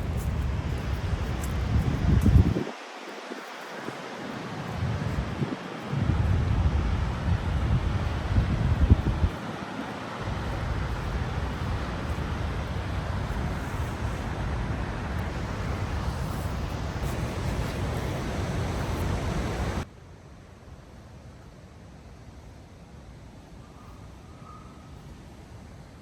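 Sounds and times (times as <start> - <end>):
wind buffeting microphone: 0.0 - 19.9
faint hiss: 0.0 - 26.0.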